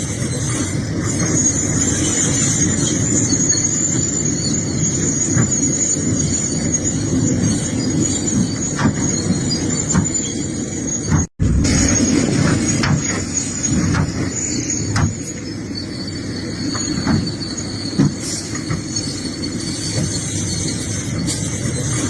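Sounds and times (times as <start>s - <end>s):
excavator rumble: 0.0s - 22.0s
thin high squeal: 0.0s - 22.0s.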